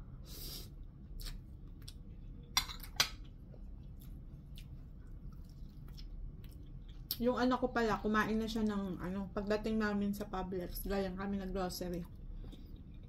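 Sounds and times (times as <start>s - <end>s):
chewing crispy fried food: 3.2s - 7.6s, 11.8s - 13.0s.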